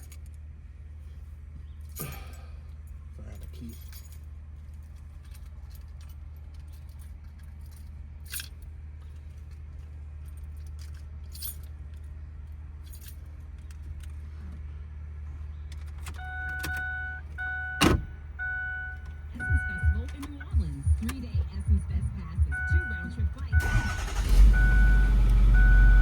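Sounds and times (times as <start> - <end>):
keys jangling and clicking: 1.8 - 12.2, 12.8 - 14.2
low hum: 16.1 - 26.0
car warning chime: 16.2 - 26.0.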